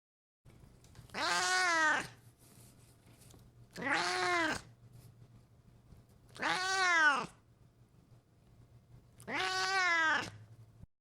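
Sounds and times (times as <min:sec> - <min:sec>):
cat meowing: 0:01.1 - 0:02.2, 0:03.8 - 0:04.7, 0:06.3 - 0:07.4, 0:09.2 - 0:10.4.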